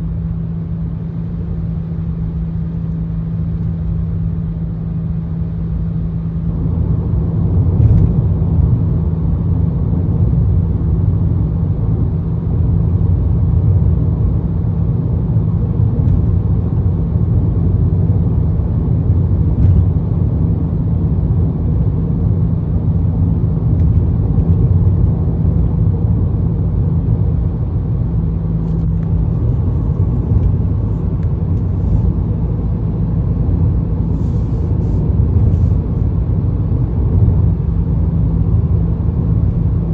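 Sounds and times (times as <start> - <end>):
low exhaust rumble: 0.0 - 39.9
road noise: 13.1 - 39.9.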